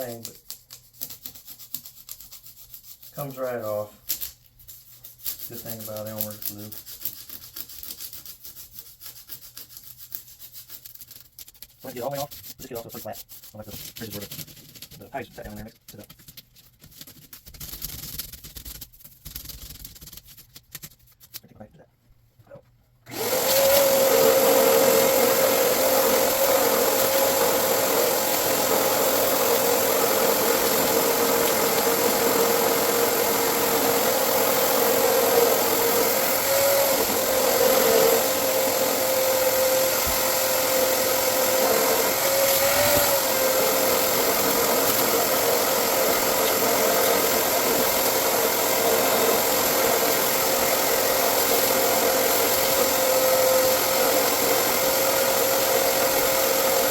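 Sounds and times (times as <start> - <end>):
electric motor whining: 23.1 - 56.9.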